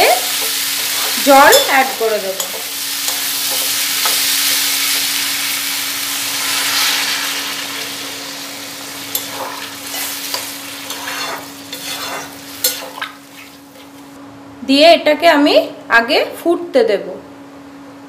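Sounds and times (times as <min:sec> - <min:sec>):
food sizzling in a pan: 0:00.0 - 0:14.2
water poured into hot pan: 0:06.2 - 0:08.6.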